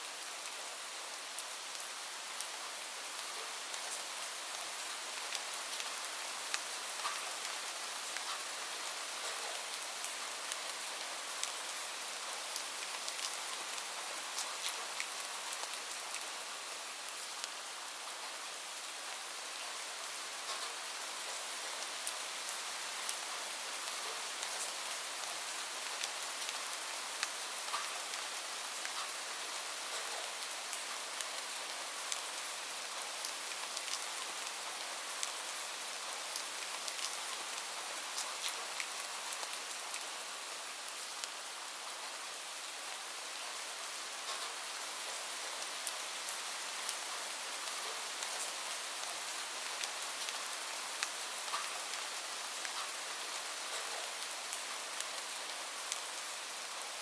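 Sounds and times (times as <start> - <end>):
steady rain hiss: 0.0 - 57.0
rain drops ticking: 3.2 - 16.3, 20.4 - 40.2, 44.2 - 56.8.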